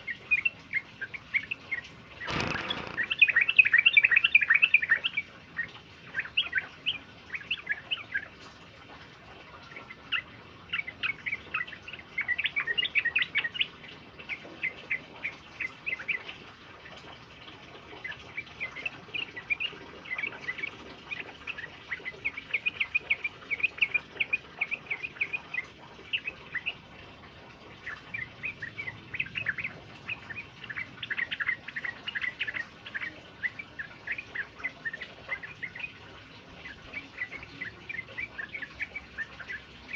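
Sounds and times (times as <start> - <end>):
faint steady hiss: 0.0 - 39.9
bulbul singing chattering phrases: 18.0 - 39.9.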